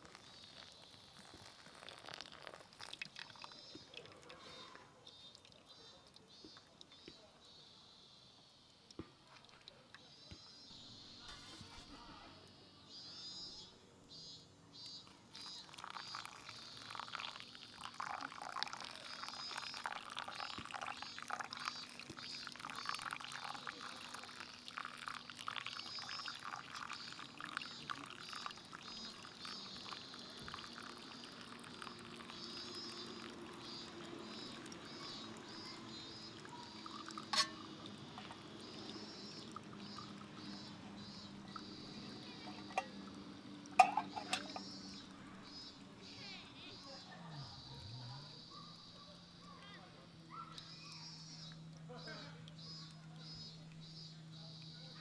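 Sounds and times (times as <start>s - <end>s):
liquid pouring and splashing: 0.0s - 4.8s, 15.3s - 40.7s, 41.5s - 45.3s.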